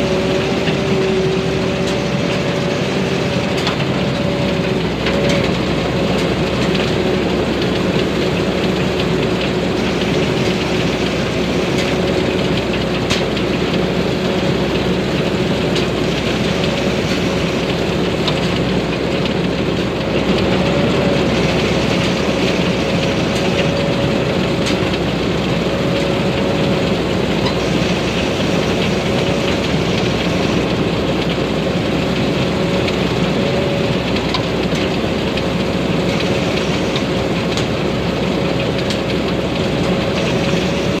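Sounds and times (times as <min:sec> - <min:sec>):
combine harvester engine running: 0:00.0 - 0:41.0
steady whine: 0:00.0 - 0:41.0.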